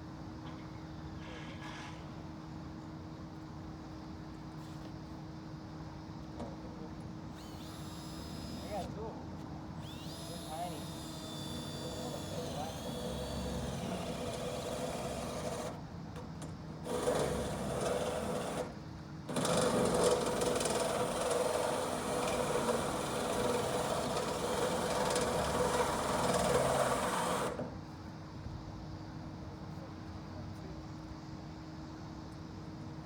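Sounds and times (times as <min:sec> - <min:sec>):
handheld power tool motor: 0:07.4 - 0:09.0, 0:09.8 - 0:15.8, 0:16.9 - 0:18.7, 0:19.3 - 0:27.6.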